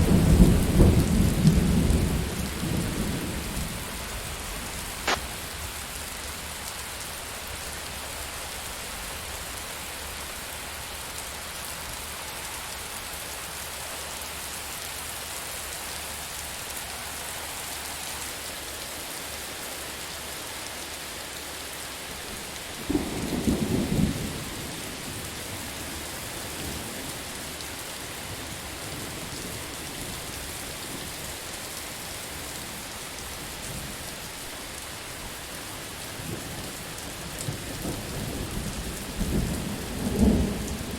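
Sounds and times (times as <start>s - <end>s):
low thunder crack rumbling: 0.0s - 5.5s
steady rainfall hissing: 0.0s - 40.9s.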